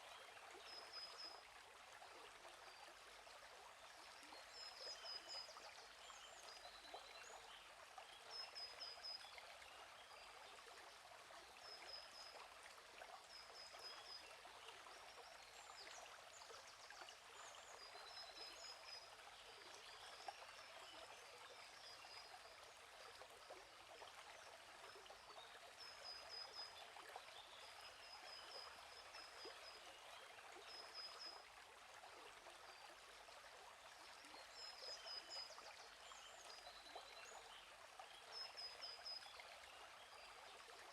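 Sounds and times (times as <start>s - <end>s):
faint stream flowing: 0.0s - 40.9s.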